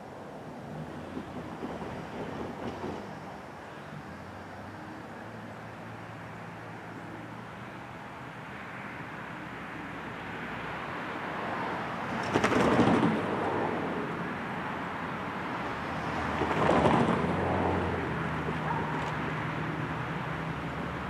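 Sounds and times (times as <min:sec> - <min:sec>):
bursts of train noise: 0:00.0 - 0:06.2, 0:11.3 - 0:19.0
distant train rumble: 0:00.0 - 0:21.0.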